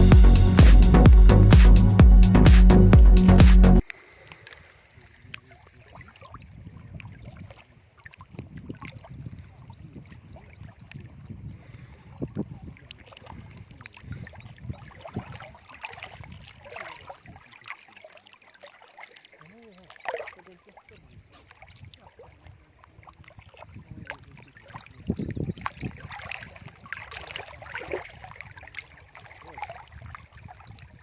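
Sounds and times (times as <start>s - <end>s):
electronic music: 0.0s - 3.8s
wind on microphone: 8.3s - 15.4s, 23.6s - 29.0s, 29.8s - 31.0s.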